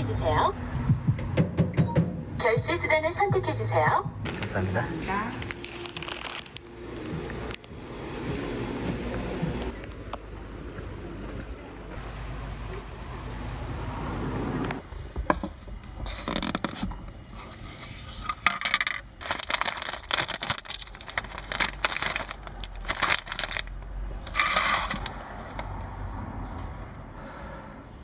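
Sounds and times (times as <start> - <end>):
packaging rustling and crinkling: 4.3 - 7.7, 16.0 - 25.6.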